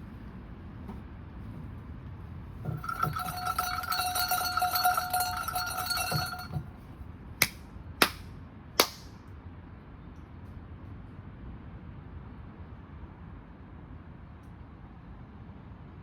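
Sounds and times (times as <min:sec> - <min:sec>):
shrine bell jangling: 0:02.6 - 0:06.7
sharp hand claps: 0:07.4 - 0:09.1.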